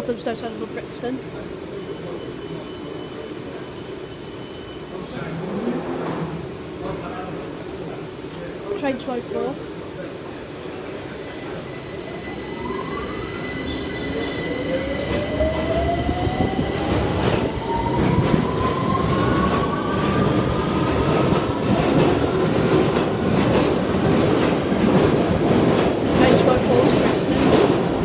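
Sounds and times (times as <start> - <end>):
wheels rumbling on rail: 14.2 - 28.0.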